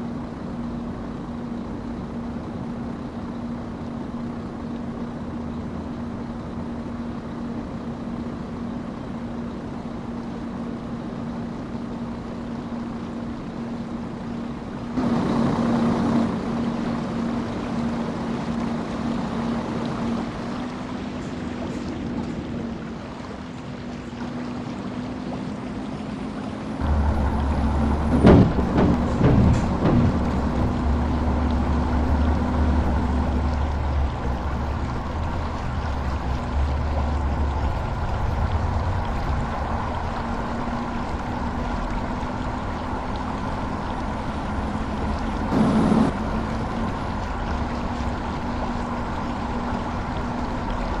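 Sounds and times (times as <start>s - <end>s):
engine running: 0.0s - 51.0s
loud knocks or thumps: 27.3s - 31.3s.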